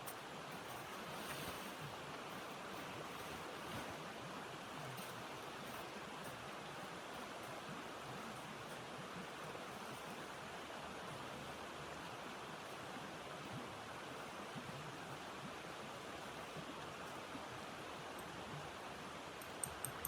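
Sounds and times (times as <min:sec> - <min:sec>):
faint ticks: 0:19.4 - 0:20.0.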